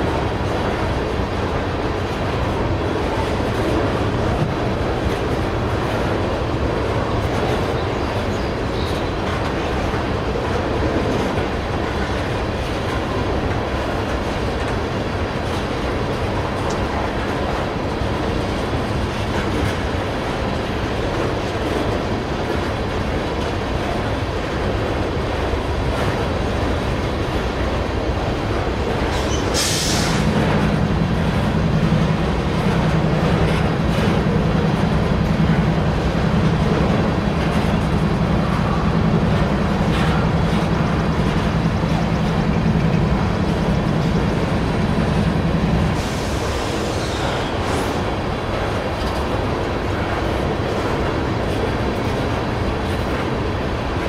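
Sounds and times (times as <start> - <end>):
freight train rolling past: 0.0 - 54.0
short hiss: 29.5 - 30.3.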